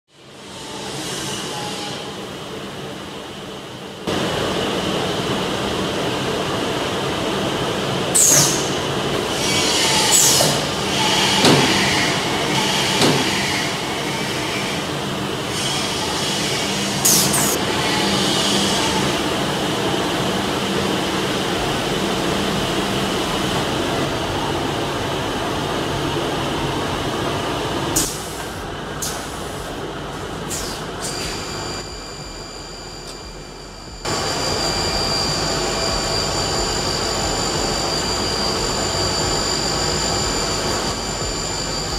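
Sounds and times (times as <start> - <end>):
high-pitched sweeps: 30.4 - 41.9
router machine whine: 31.0 - 41.9.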